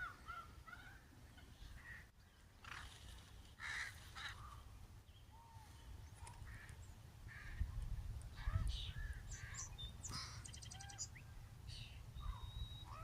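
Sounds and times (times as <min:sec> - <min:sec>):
crows cawing: 0:03.6 - 0:04.6, 0:06.4 - 0:07.6.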